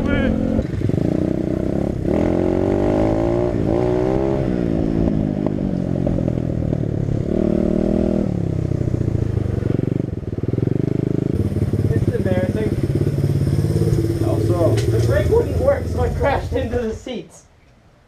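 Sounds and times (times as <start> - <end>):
dirt bike engine revving: 0.0 - 5.5, 7.2 - 8.4, 9.0 - 16.8.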